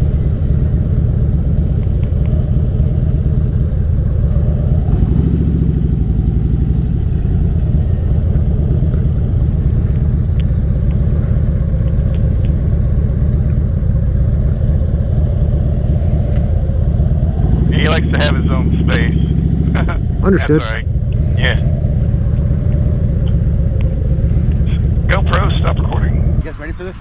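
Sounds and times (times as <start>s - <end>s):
motorcycle engine idling: 0.0s - 26.5s.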